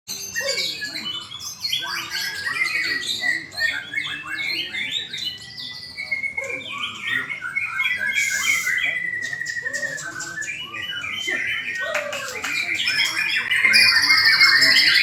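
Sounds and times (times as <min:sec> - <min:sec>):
bird singing varied song: 0:00.1 - 0:15.0
long even bird whistle: 0:00.2 - 0:11.8.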